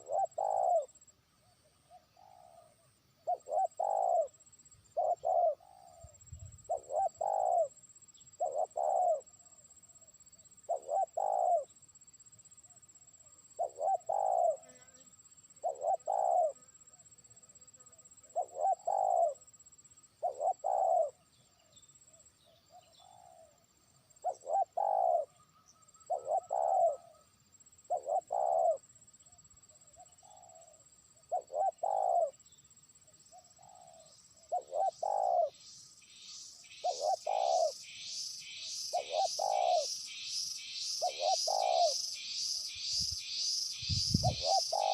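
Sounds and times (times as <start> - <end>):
dove cooing: 0.0 - 1.0, 1.8 - 7.8, 8.4 - 9.4, 10.7 - 11.7, 13.6 - 14.8, 15.6 - 16.6, 18.2 - 19.4, 20.2 - 21.2, 22.8 - 23.6, 24.2 - 25.4, 26.0 - 27.2, 27.9 - 28.9, 29.9 - 32.4, 33.3 - 35.6, 36.8 - 37.8, 38.9 - 39.9, 41.0 - 42.0, 43.9 - 44.9.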